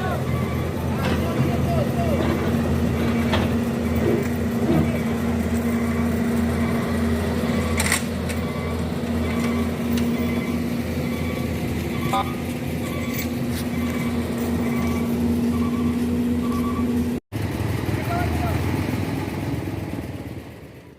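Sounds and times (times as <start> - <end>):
engine humming: 0.0 - 20.9.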